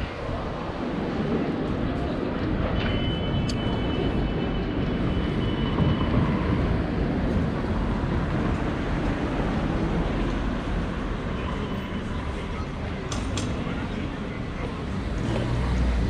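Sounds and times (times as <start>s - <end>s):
wind rumble: 0.0s - 11.3s
road noise: 0.0s - 16.0s.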